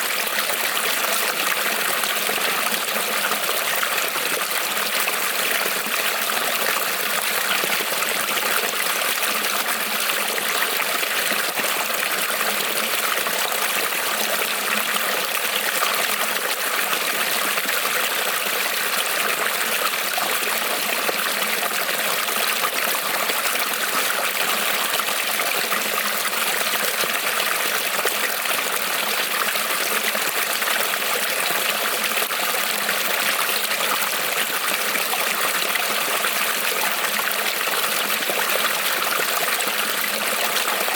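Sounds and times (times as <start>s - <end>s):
creek water trickling over stones: 0.0s - 9.1s.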